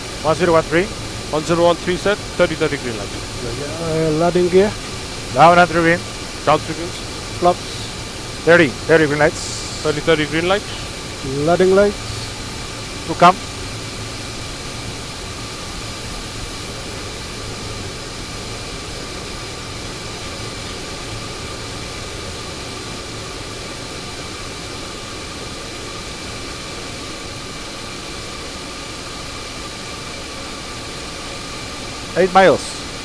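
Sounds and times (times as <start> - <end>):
airflow rushing over airframe: 0.0 - 14.7
faint whining tones: 0.0 - 14.8
jet engine hum: 0.0 - 33.0.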